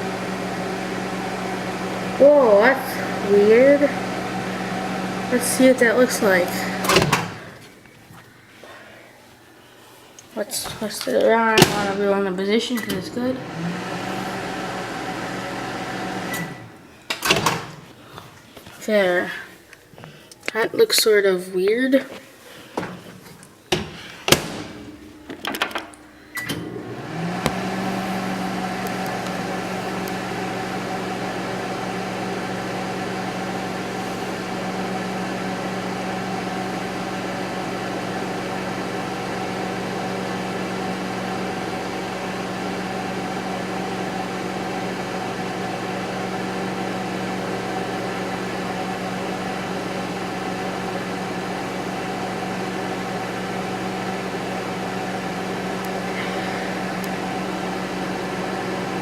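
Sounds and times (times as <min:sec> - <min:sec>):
microwave oven humming: 0:00.0 - 0:07.8, 0:11.4 - 0:17.6, 0:24.4 - 0:59.0
clicks and knocks: 0:23.7 - 0:26.6.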